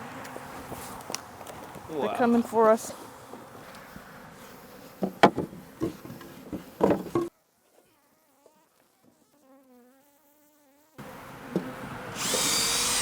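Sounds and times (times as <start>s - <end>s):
bees buzzing: 8.1s - 13.0s.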